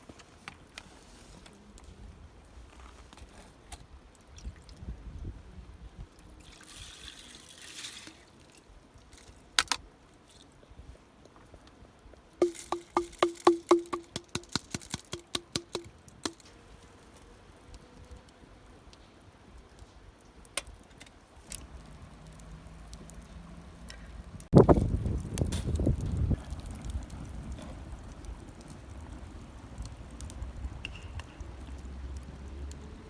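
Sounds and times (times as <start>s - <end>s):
liquid pouring: 6.4s - 8.5s.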